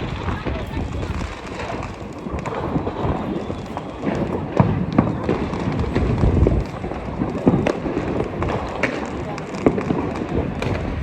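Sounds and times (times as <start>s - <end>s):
firecrackers popping and cracking: 0.0s - 11.0s.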